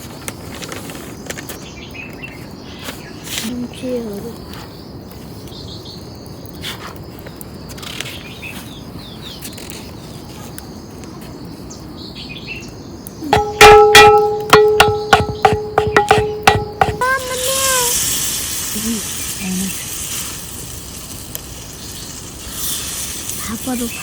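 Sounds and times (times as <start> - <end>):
steady outdoor hiss: 0.0 - 24.0
faint bird chirps: 1.6 - 21.0
thin high tone: 13.2 - 18.2.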